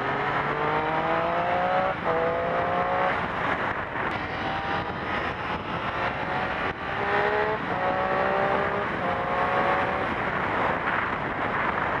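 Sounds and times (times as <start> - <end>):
motorcycle engine accelerating: 0.0 - 11.5
wind rush over helmet: 0.0 - 12.0.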